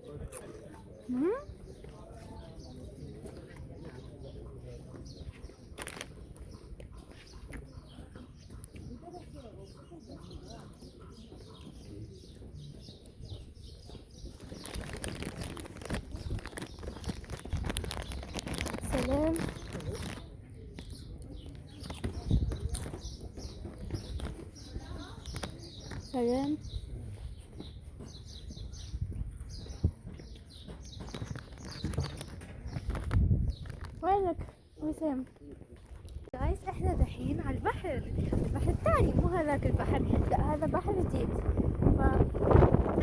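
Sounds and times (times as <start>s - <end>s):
small birds chirping: 0.0s - 43.0s
crackling rustle: 14.2s - 20.4s.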